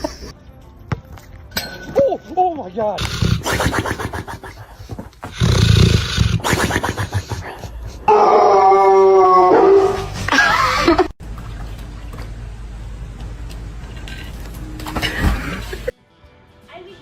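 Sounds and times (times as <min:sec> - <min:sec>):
dog howling: 0:08.1 - 0:10.2.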